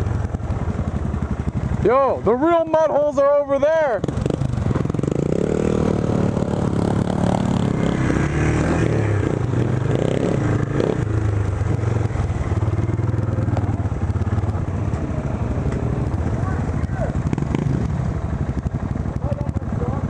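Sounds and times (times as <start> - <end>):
off-road motorcycle engine revving: 0.0 - 20.0.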